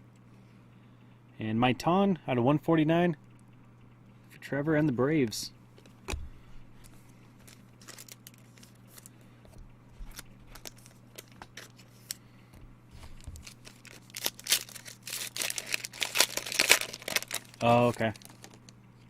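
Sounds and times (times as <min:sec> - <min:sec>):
steady low hum: 0:00.0 - 0:19.0
trading cards being handled: 0:05.7 - 0:18.8
plastic wrapper tearing and crinkling: 0:07.4 - 0:09.1, 0:10.0 - 0:12.2, 0:13.0 - 0:18.7.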